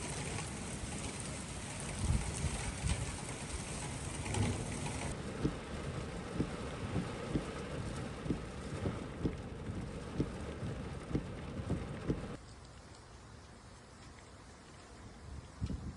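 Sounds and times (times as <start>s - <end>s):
heavy rain pouring: 0.0s - 12.4s
low thuds: 4.2s - 12.4s.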